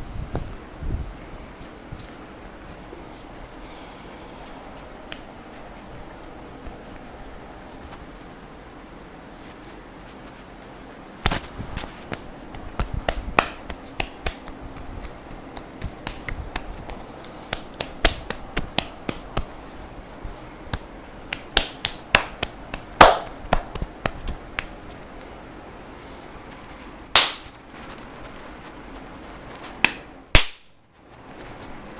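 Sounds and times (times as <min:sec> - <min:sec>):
hands slapping a person's back: 0:05.1 - 0:05.3, 0:11.2 - 0:19.6, 0:20.2 - 0:24.9, 0:27.2 - 0:27.6, 0:29.7 - 0:30.7.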